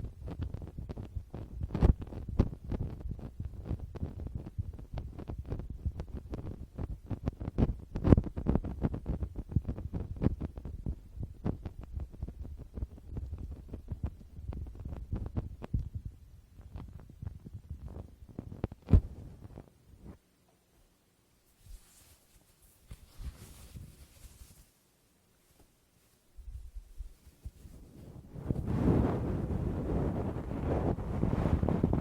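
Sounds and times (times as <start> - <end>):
fingertips tapping on microphone: 0.2 - 20.2.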